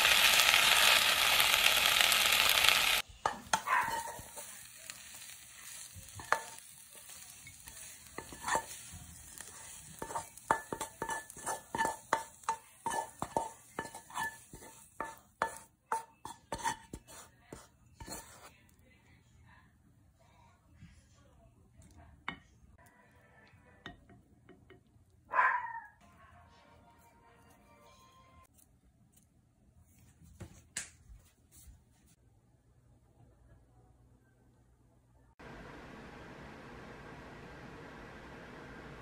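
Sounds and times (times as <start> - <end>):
food sizzling in a frying pan: 0.0 - 17.1
wooden spatula scraping a pan: 3.2 - 18.5.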